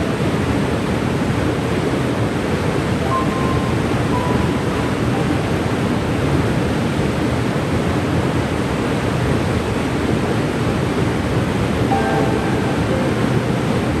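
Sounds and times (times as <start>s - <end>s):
waterfall rushing: 11.9s - 14.0s.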